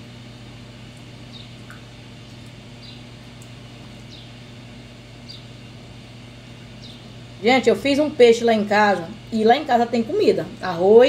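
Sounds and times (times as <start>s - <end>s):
steady low hum: 0.0s - 11.0s
small bird chirping: 1.3s - 1.6s, 2.8s - 3.1s, 4.1s - 4.4s, 5.2s - 5.5s, 6.8s - 7.1s.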